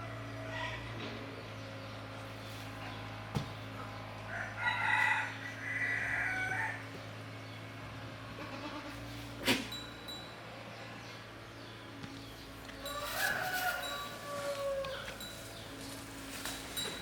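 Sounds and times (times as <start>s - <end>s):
rooster crowing: 4.3s - 6.8s, 12.8s - 15.4s.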